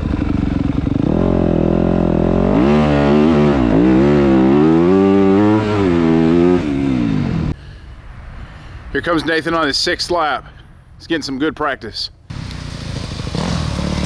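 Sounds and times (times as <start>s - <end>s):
dirt bike engine revving: 0.0s - 7.5s, 12.3s - 14.0s.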